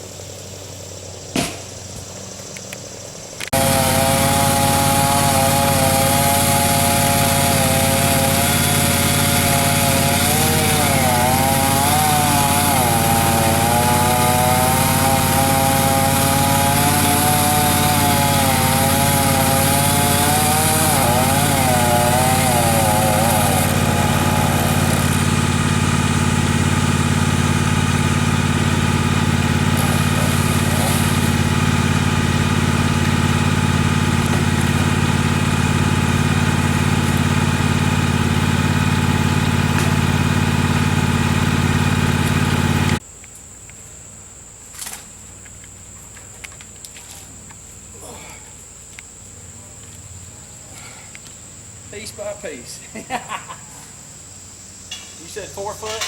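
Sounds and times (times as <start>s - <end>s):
chainsaw engine running: 3.4s - 43.0s.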